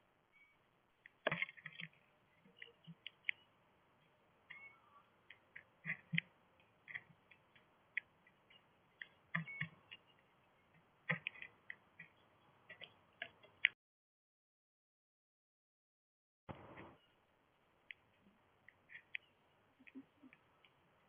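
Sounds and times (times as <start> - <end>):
birds pecking on a feeder: 1.0 - 13.7, 17.8 - 21.0.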